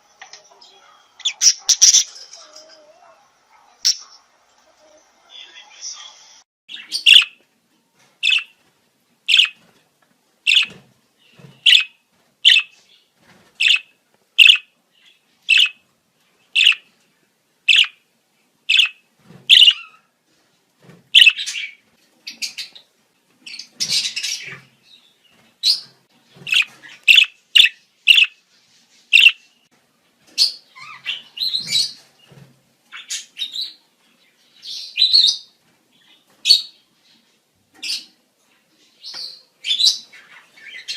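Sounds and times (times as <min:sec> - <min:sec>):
budgerigars chirping: 0:01.2 - 0:02.1, 0:06.7 - 0:07.4, 0:08.2 - 0:08.5, 0:09.3 - 0:09.6, 0:10.5 - 0:10.8, 0:11.6 - 0:12.7, 0:13.6 - 0:14.7, 0:15.5 - 0:15.8, 0:16.6 - 0:16.9, 0:17.7 - 0:18.0, 0:18.7 - 0:20.0, 0:21.2 - 0:22.8, 0:26.5 - 0:28.4, 0:29.2 - 0:29.4.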